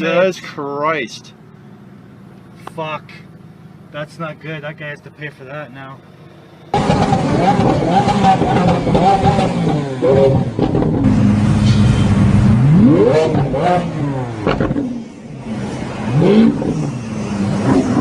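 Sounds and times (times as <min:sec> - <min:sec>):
sports car engine revving: 0:06.0 - 0:18.0.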